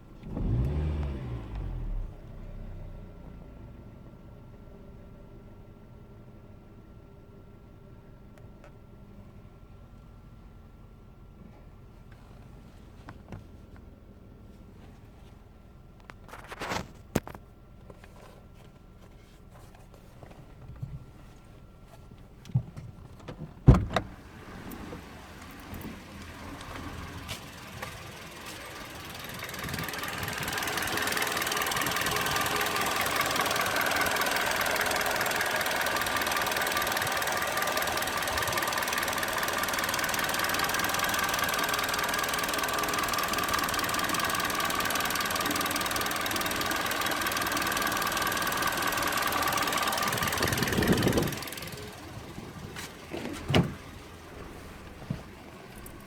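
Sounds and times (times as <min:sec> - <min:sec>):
car engine running: 0:14.4 - 0:56.0
loud thump: 0:53.4 - 0:53.8.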